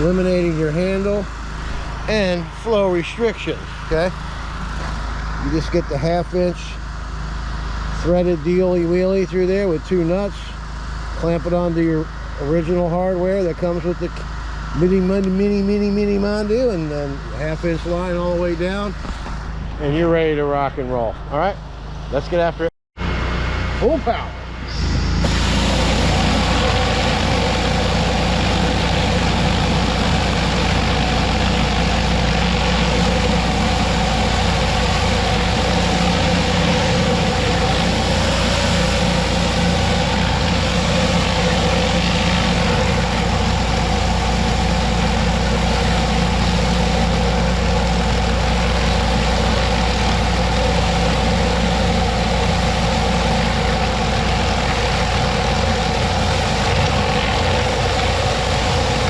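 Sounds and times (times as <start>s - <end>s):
engine drone: 0.0s - 59.0s
high-pressure water spraying: 24.7s - 59.0s.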